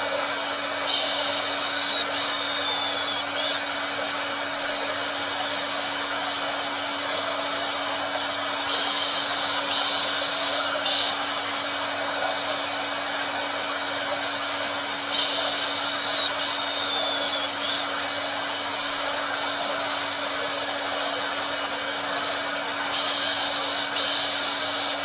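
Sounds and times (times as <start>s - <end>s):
hair dryer running: 0.0s - 25.0s
bright hiss: 0.8s - 3.7s, 8.6s - 11.8s, 15.0s - 18.4s, 22.9s - 25.0s.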